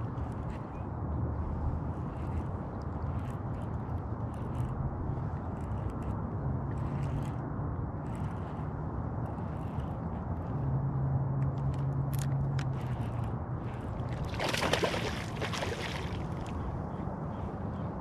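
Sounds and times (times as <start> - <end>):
water sloshing and gurgling: 12.2 - 17.1
water splashing: 14.2 - 16.5.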